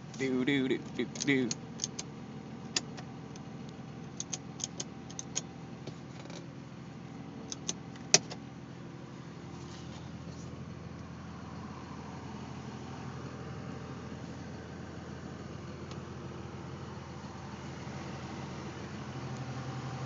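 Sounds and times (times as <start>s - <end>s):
car engine idling: 0.0s - 20.0s
sharp clicks and taps: 4.2s - 5.5s, 7.5s - 8.4s.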